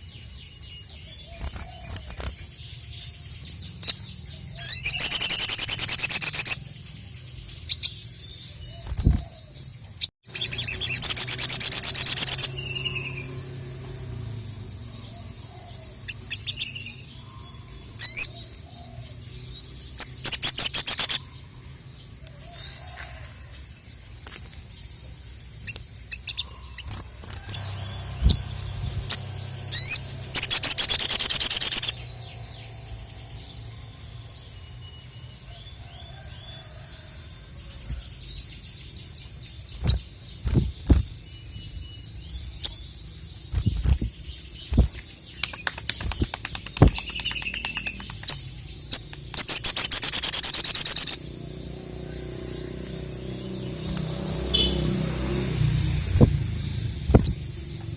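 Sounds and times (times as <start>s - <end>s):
bird chirping: 0.0s - 57.9s
bird rapid high trill: 4.6s - 6.7s, 10.2s - 13.4s, 26.2s - 32.0s, 49.4s - 51.2s.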